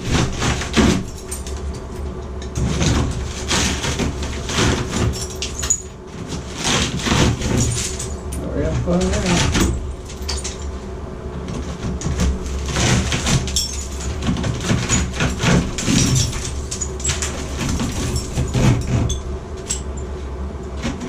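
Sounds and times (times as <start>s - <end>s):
low hum: 0.0s - 21.0s
knocks and scrapes: 2.5s - 10.6s, 11.4s - 19.9s.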